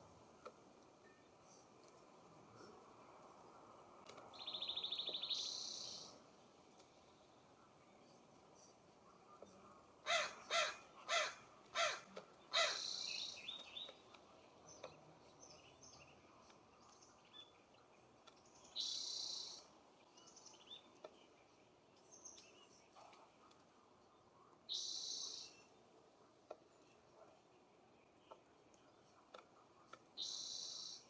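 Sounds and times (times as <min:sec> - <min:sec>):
small bird chirps: 0:04.2 - 0:06.2, 0:12.4 - 0:21.4, 0:24.7 - 0:25.8, 0:29.9 - 0:31.0
harsh bird calls: 0:10.0 - 0:14.0.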